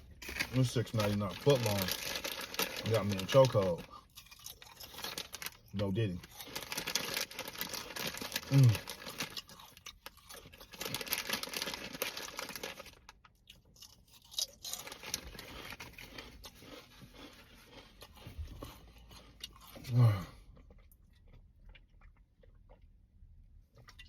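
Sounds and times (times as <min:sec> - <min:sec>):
crunchy chewing: 0:00.0 - 0:22.9
wrapper crinkling: 0:00.2 - 0:03.9, 0:04.6 - 0:09.6, 0:10.3 - 0:13.1.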